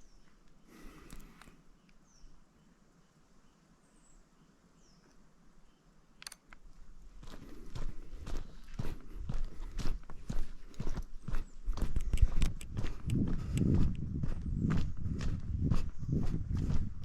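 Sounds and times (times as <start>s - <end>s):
faint bird chirps: 0.0s - 6.3s
footsteps on road: 7.0s - 17.0s.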